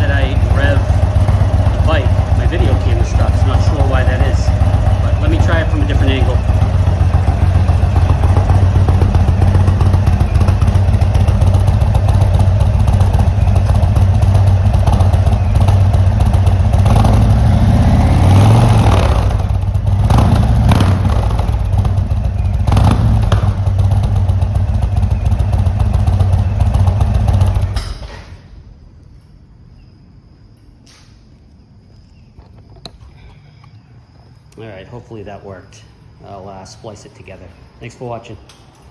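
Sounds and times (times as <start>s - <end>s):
motorcycle engine idling and revving: 0.0s - 29.5s.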